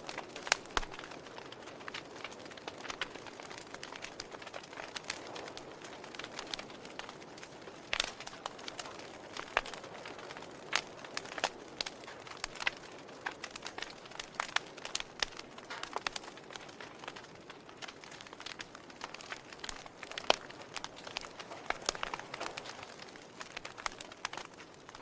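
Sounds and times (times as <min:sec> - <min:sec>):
fire crackling: 0:00.0 - 0:25.0.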